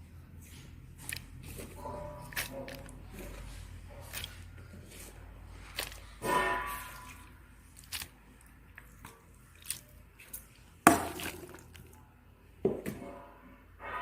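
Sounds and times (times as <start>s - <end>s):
metal pan and utensils clattering: 6.0s - 7.3s
ringing metallic strike: 6.2s - 7.1s.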